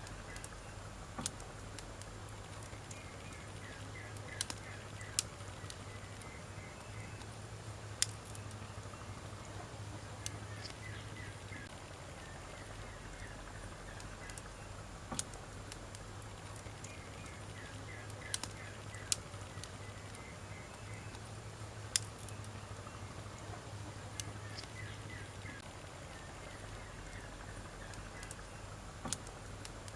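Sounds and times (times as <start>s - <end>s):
campfire crackling pops: 0.0s - 29.9s
low steady hum: 0.0s - 29.9s
faint chirping: 2.5s - 14.9s, 16.5s - 28.8s.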